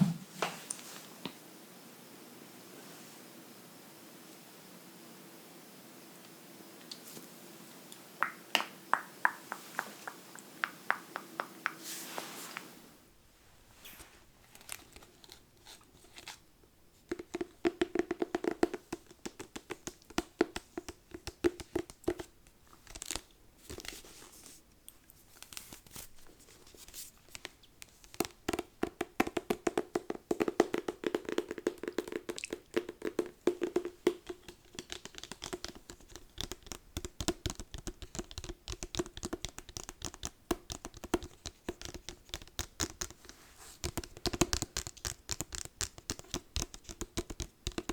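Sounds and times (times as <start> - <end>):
fingers tapping on a book: 8.2 - 12.0, 17.1 - 22.3, 27.3 - 47.9.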